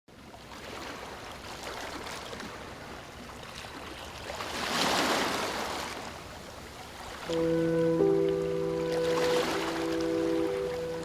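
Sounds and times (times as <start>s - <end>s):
sea waves washing in: 2.5s - 11.0s.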